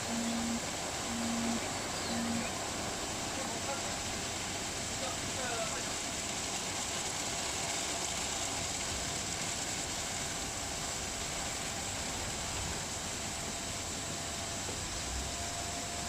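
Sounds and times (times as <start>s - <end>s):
faint steady hum: 0.0s - 5.2s
car wash rushing noise: 0.0s - 16.0s.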